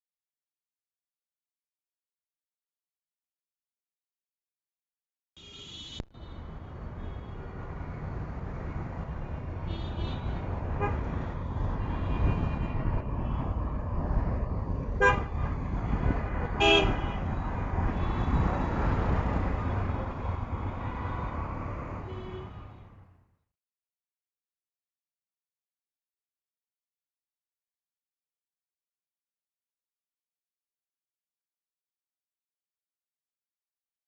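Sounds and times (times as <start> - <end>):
road traffic rumbling: 5.4 - 23.2
vehicle horn toots: 15.0 - 15.3, 16.6 - 17.2.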